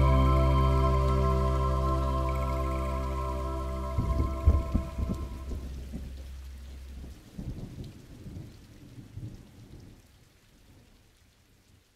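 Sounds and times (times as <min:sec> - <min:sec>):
low uneven rumbling: 0:00.0 - 0:08.5.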